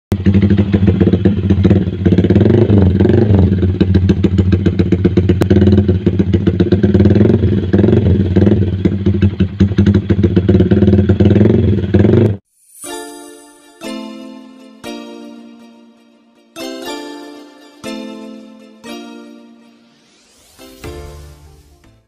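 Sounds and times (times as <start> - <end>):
motorcycle engine revving: 0.1 - 12.4.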